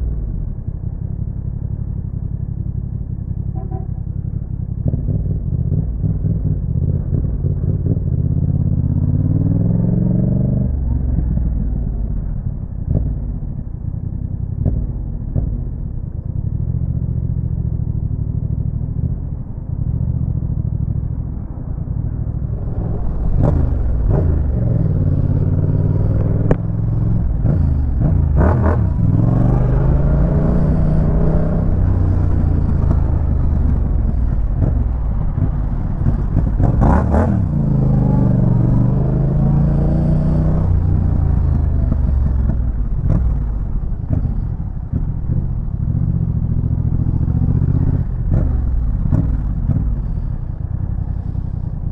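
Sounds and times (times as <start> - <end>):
motorcycle engine revving: 22.1 - 51.8.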